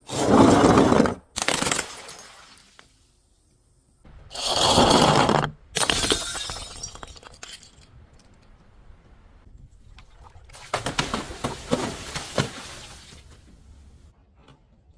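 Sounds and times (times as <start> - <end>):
glass bottles smashing: 1.4 - 2.8, 5.8 - 7.9
glass shards tinkling: 5.9 - 8.0.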